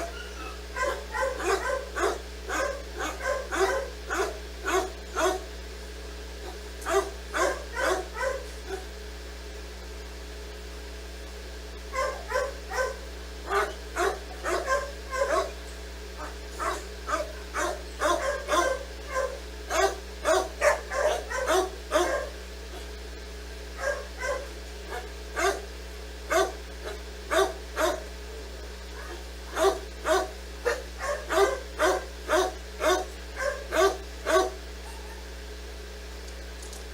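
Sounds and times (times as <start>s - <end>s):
dog barking: 0.0s - 5.6s, 6.4s - 9.0s, 11.9s - 15.6s, 16.2s - 23.0s, 23.7s - 25.7s, 26.3s - 28.2s, 28.9s - 35.4s
steady low hum: 0.0s - 36.9s.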